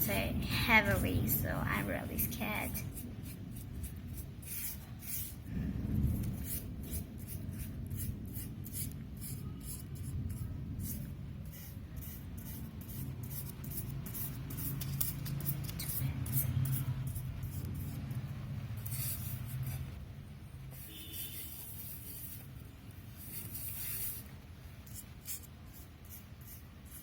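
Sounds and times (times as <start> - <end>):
paintbrush swishing on paper: 2.9 - 5.5, 6.2 - 20.0, 20.7 - 27.0
low rumble: 5.5 - 8.4.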